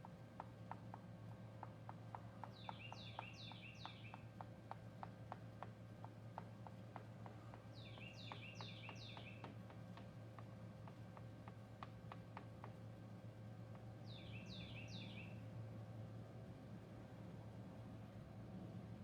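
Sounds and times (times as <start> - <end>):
steady low hum: 0.0 - 19.0
songbird singing: 2.4 - 4.3, 7.7 - 9.6, 14.0 - 15.5.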